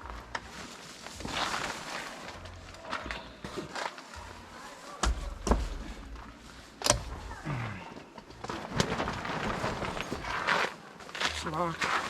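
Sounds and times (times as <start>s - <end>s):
gear being handled: 8.7s - 10.5s.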